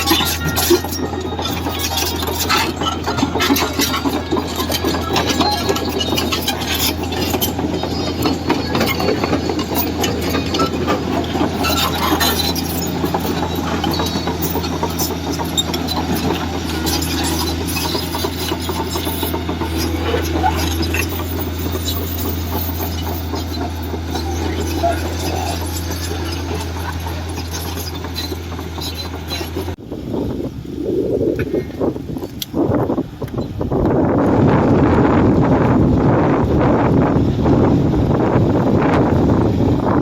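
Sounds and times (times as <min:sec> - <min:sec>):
rattling and clanking: 0:00.0 - 0:29.8
heavy diesel machinery drone: 0:00.0 - 0:40.0.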